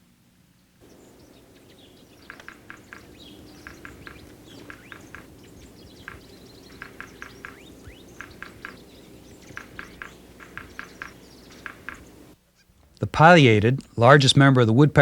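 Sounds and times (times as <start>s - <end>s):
high bird chirps: 0.8s - 12.7s
birds calling clipped notes: 0.8s - 13.1s.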